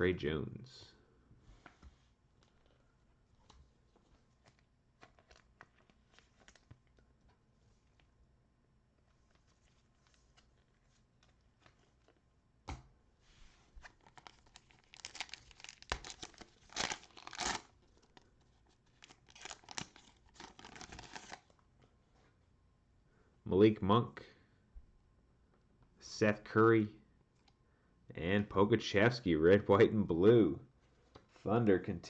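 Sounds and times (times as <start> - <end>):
cellophane wrapper crinkling: 4.3 - 7.0, 13.8 - 21.6
wrapper ripping: 13.8 - 18.2, 18.9 - 21.5.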